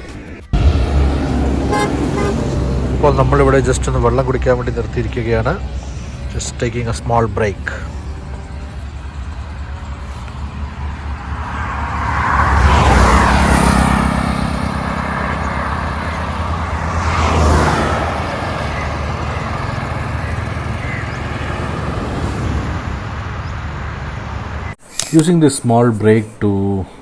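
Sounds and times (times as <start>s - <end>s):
steady traffic rumble: 0.0s - 25.2s
vehicles passing close: 0.4s - 24.8s.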